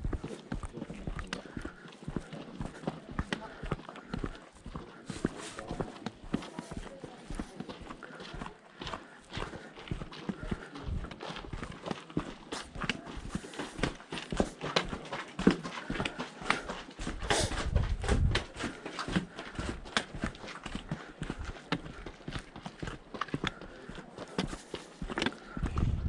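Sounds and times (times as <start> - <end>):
footsteps on rocky ground: 0.0 - 26.0
low rumble: 25.7 - 26.0.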